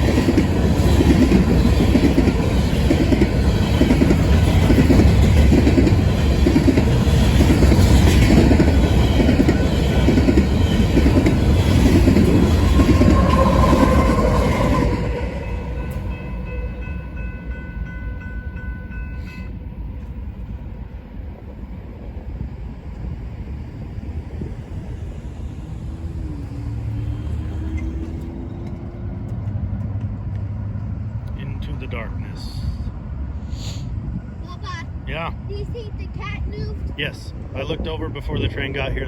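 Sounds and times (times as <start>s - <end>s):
train wheels clickety-clack: 0.0s - 16.3s, 26.6s - 31.8s
train rumble: 0.0s - 39.0s.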